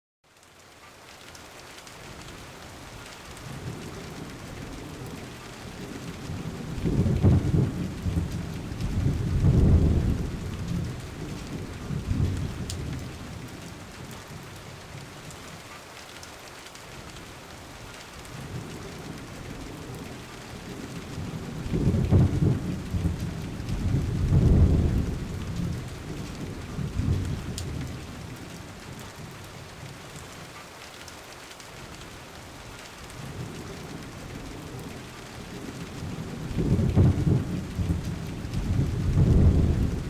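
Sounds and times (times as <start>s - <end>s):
steady rain: 0.2s - 40.0s
thunder rumbling: 3.4s - 15.0s, 18.4s - 29.3s, 33.2s - 40.0s.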